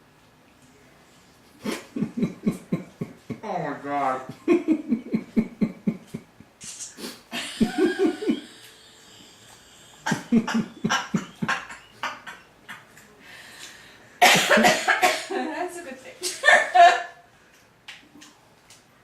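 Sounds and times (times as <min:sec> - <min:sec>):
man panting and huffing: 0:09.9 - 0:11.5.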